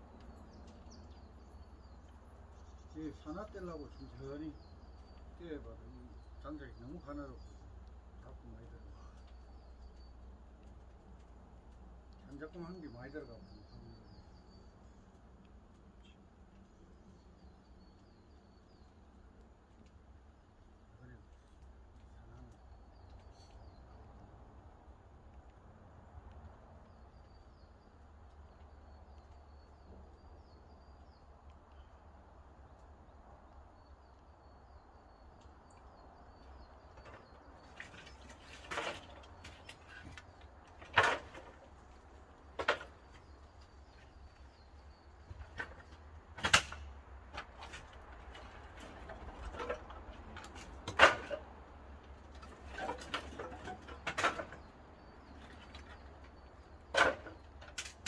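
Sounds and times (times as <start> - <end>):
wood knocking and cracking: 34.9 - 58.0.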